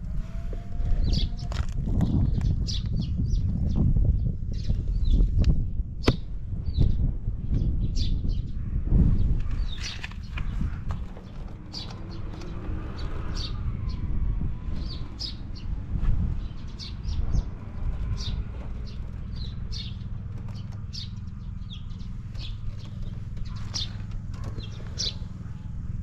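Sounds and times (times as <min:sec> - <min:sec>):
birds chirping: 0:00.0 - 0:26.0
small engine idling: 0:16.4 - 0:26.0.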